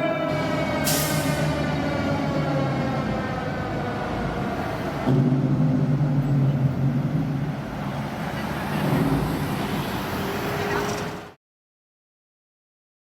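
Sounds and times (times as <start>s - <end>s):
siren winding down: 0.0s - 4.4s.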